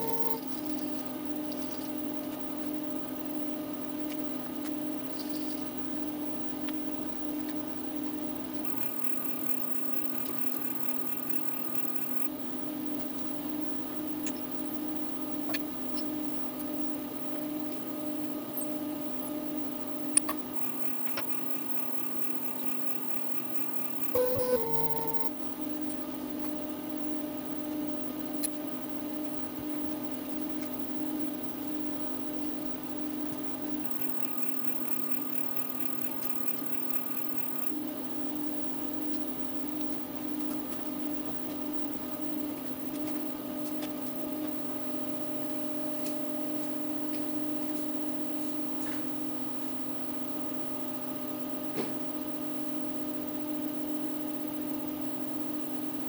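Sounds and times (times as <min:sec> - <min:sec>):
milling machine humming: 0:00.0 - 0:48.7
rapid high-pitched tool chatter: 0:08.6 - 0:12.3, 0:20.6 - 0:25.3, 0:33.8 - 0:37.7.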